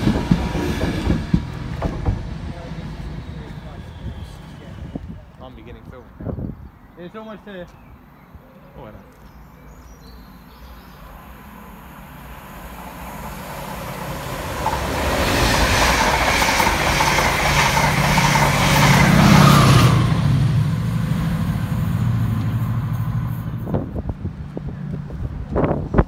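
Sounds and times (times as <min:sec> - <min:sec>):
wheels clacking over rail joints: 0:00.0 - 0:03.7, 0:12.7 - 0:20.1
diesel locomotive engine: 0:00.0 - 0:06.6, 0:10.3 - 0:26.0
passing train: 0:00.0 - 0:26.0.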